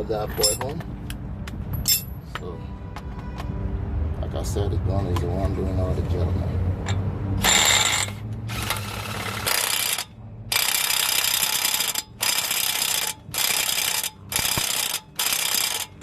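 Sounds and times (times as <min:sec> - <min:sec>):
air impact gun hammering: 0:10.6 - 0:15.9.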